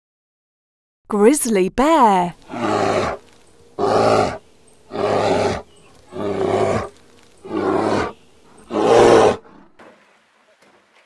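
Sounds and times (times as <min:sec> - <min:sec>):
bear roaring: 0:02.4 - 0:09.8.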